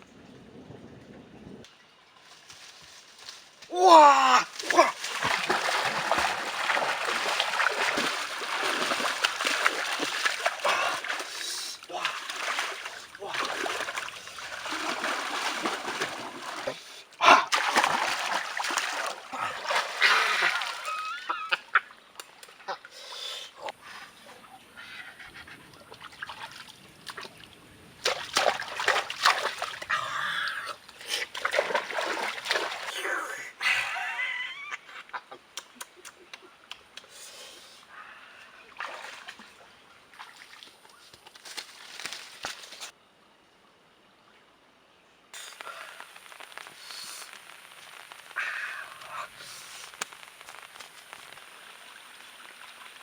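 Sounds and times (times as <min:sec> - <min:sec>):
hands splashing in water: 0:04.6 - 0:16.8, 0:17.5 - 0:21.0, 0:28.0 - 0:29.9.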